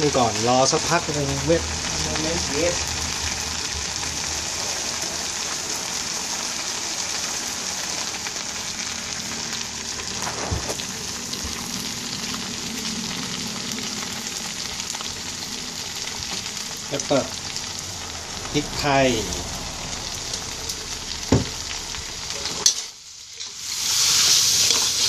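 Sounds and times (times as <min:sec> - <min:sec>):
squid sizzling in hot oil: 0:00.0 - 0:25.0.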